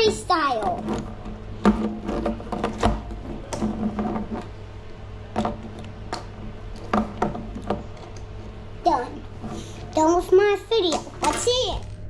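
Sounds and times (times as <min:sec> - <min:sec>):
plastic toys clattering: 0:10.9 - 0:11.7.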